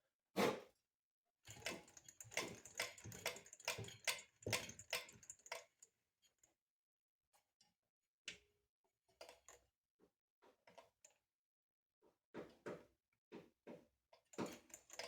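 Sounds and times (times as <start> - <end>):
small parts clicking and knocking: 1.5 - 6.4, 14.4 - 15.0.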